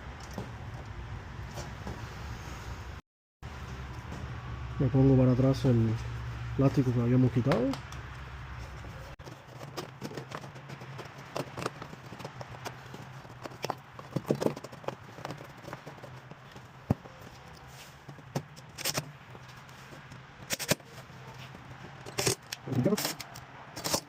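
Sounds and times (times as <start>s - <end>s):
plastic parts clicking and knocking: 9.2s - 20.9s, 21.5s - 24.0s.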